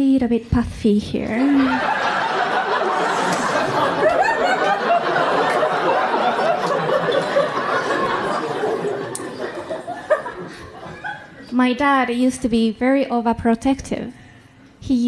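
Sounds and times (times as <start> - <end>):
audience laughing: 1.4 - 11.5.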